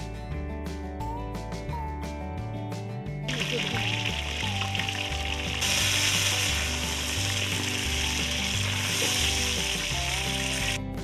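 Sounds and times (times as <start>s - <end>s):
background music with bass line: 0.0s - 11.0s
greens sizzling in hot oil: 3.3s - 10.8s.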